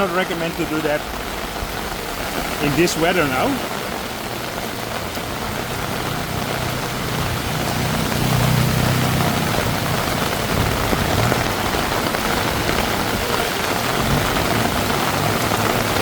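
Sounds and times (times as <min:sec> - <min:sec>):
heavy rain falling: 0:00.0 - 0:16.0
passing vehicle engine hum: 0:04.2 - 0:16.0.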